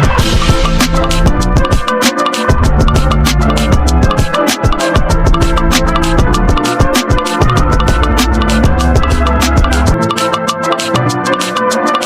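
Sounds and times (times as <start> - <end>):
heavy bass: 0.0 - 1.8, 2.5 - 10.0
music with fast drum beat: 0.0 - 12.0.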